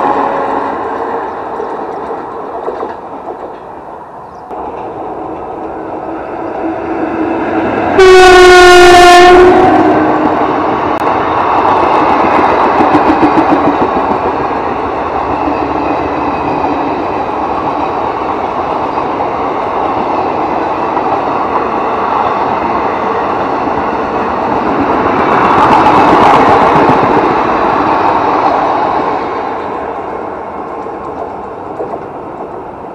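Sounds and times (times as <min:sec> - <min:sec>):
wheels clattering on rails: 0:00.9 - 0:03.9, 0:30.7 - 0:32.7
locomotive horn blast: 0:06.7 - 0:10.4.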